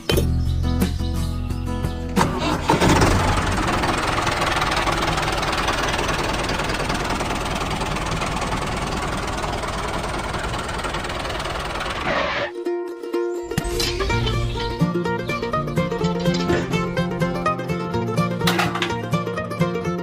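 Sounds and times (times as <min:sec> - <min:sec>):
small engine knocking: 0:02.7 - 0:12.1.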